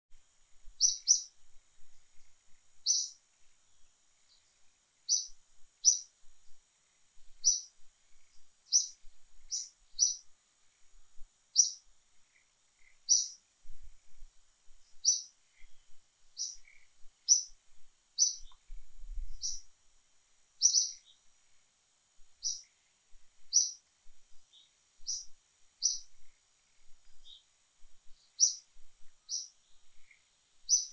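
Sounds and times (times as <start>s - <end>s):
bird chirping: 0.8s - 1.4s, 2.1s - 6.6s, 7.3s - 10.3s, 11.5s - 13.8s, 14.8s - 17.6s, 18.2s - 19.7s, 20.6s - 21.3s, 22.4s - 22.8s, 23.4s - 30.9s.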